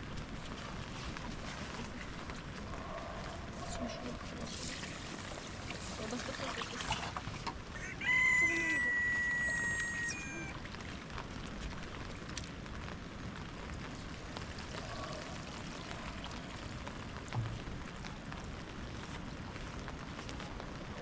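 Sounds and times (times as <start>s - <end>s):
steady rain: 0.0s - 21.0s
low thump: 17.3s - 17.8s.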